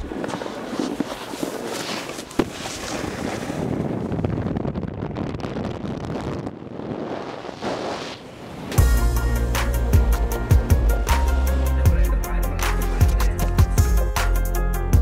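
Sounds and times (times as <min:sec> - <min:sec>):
wind rushing over microphone: 0:02.4 - 0:09.0.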